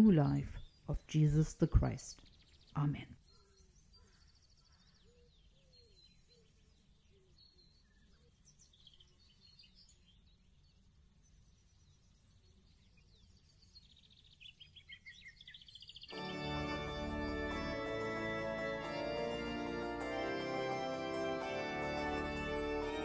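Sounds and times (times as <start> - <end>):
faint birdsong: 0.0 - 23.0
music: 16.1 - 23.0.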